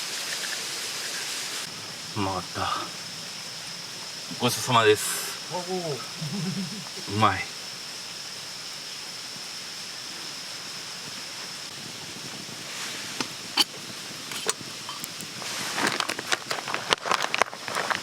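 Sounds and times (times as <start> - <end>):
constant high-pitched tone: 0.0 - 7.6
steady hiss: 0.0 - 18.0
rustling: 12.6 - 18.0.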